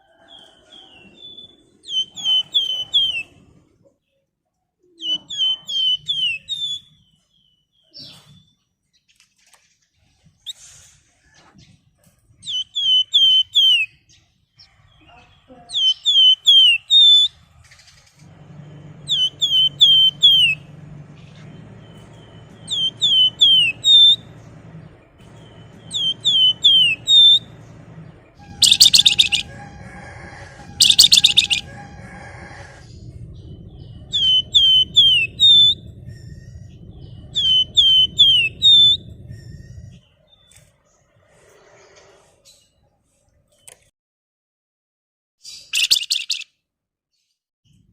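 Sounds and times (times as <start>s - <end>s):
songbird whistling: 0.4s - 3.4s, 5.0s - 7.2s, 12.4s - 14.0s, 15.7s - 17.4s, 18.4s - 27.7s, 28.3s - 40.6s, 45.6s - 46.5s
harsh rasping bird calls: 0.8s - 3.4s, 15.0s - 42.7s, 45.5s - 46.5s
low steady hum: 17.3s - 40.2s.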